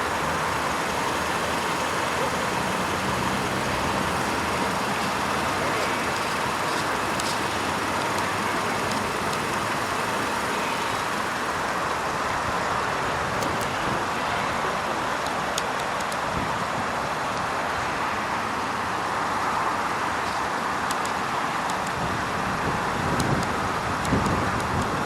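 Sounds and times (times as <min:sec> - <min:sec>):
car engine running: 0:00.0 - 0:15.0
road and tyre noise: 0:00.0 - 0:25.0.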